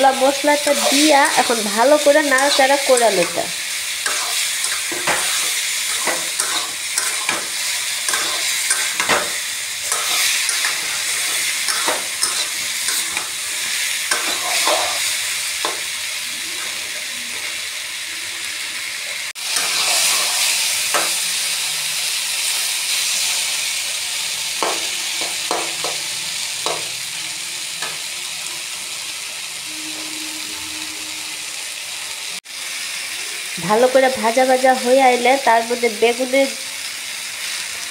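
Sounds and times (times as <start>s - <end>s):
vegetables sizzling in a pan: 0.0s - 37.9s
spatula scraping a pan: 0.6s - 15.9s, 19.4s - 21.2s.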